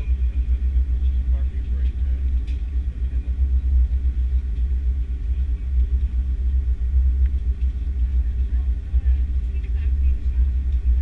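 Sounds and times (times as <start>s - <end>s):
airliner cabin rumble: 0.0s - 11.0s
faint steady hum: 0.0s - 11.0s.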